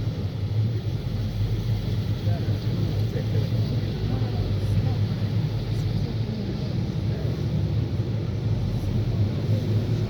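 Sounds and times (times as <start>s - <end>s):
traffic rumble: 0.0s - 10.0s.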